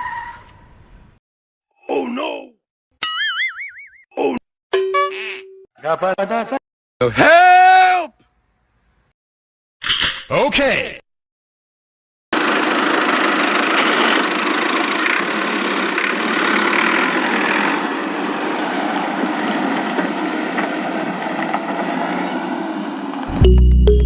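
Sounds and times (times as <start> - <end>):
motor running steadily: 12.4 - 23.4.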